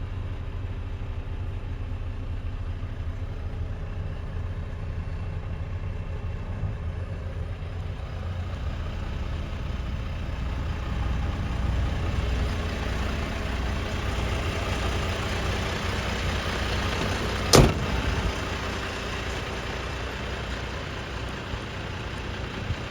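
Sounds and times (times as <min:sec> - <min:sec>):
truck diesel engine idling: 0:00.0 - 0:22.9.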